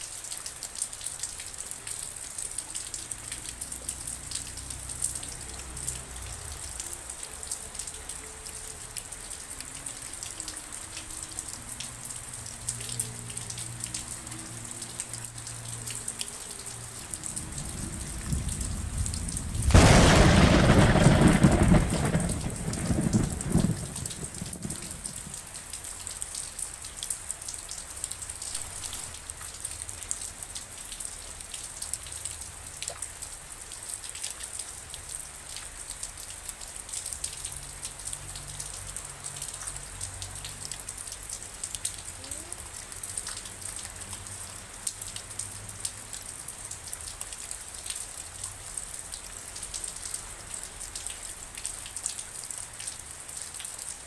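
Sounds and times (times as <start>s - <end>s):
raindrops pattering: 0.0s - 54.0s
thunder rolling: 17.0s - 25.6s.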